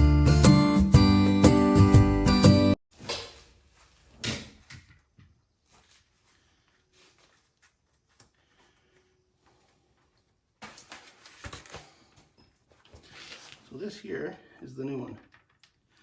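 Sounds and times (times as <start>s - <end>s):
acoustic guitar music: 0.0s - 2.8s
knocks and rattles of parts: 4.0s - 5.4s, 15.0s - 16.0s.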